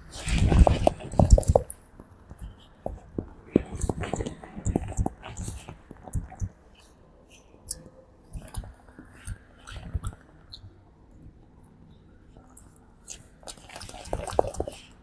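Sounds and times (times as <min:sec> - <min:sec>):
monkey grooming wet clicks: 0:13.4 - 0:14.9.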